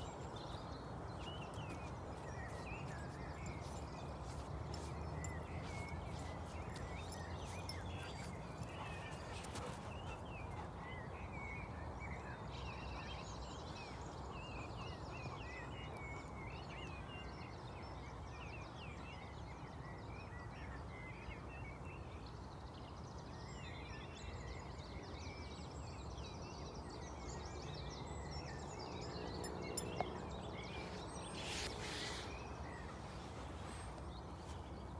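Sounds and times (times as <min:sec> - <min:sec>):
small birds chirping: 0:00.0 - 0:11.1, 0:27.6 - 0:34.9
short rustle: 0:30.6 - 0:34.8.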